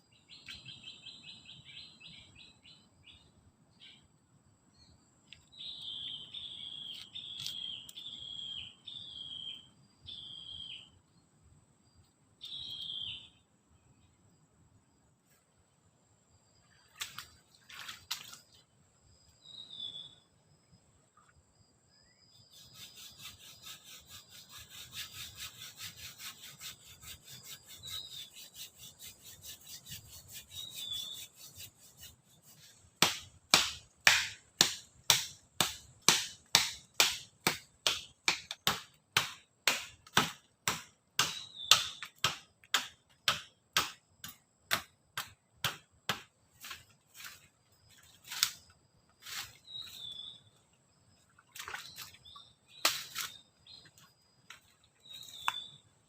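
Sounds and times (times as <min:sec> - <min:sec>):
short bird chirps: 0:05.5 - 0:11.0, 0:12.4 - 0:13.4, 0:27.4 - 0:31.6, 0:49.3 - 0:50.5, 0:55.0 - 0:55.9
hand saw cutting wood: 0:22.5 - 0:44.0.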